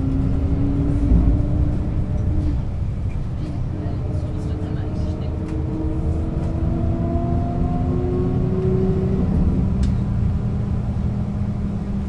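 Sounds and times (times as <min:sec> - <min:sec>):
bus engine running: 0:00.0 - 0:12.0.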